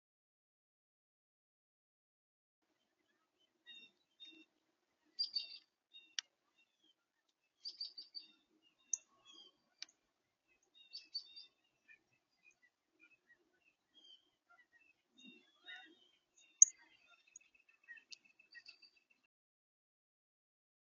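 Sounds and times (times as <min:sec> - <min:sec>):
small birds chirping: 0:02.7 - 0:19.3.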